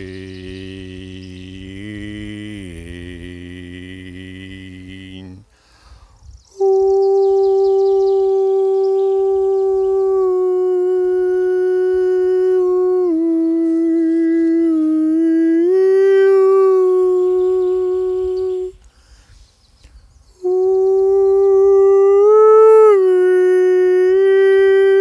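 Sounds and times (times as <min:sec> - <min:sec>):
faint bird chirps: 0:00.0 - 0:02.0, 0:05.6 - 0:10.1, 0:18.2 - 0:20.5
man singing long notes: 0:00.0 - 0:05.5, 0:06.6 - 0:18.8, 0:20.4 - 0:25.0.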